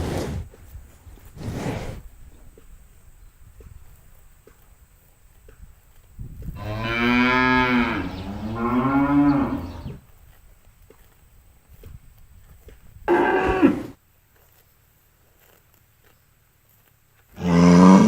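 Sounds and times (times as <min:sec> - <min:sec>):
cow mooing: 0:06.6 - 0:10.0, 0:13.1 - 0:14.0, 0:17.4 - 0:18.0.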